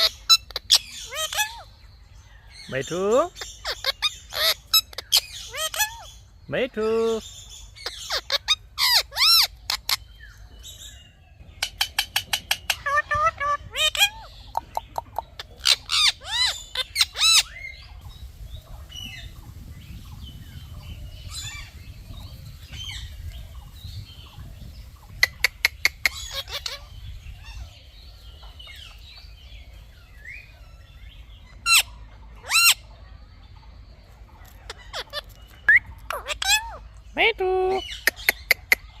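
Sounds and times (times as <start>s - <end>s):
parakeet squawking: 0.0s - 1.7s, 2.7s - 6.2s, 7.0s - 10.0s, 11.6s - 17.6s, 25.2s - 27.7s, 31.6s - 32.8s, 34.7s - 38.9s.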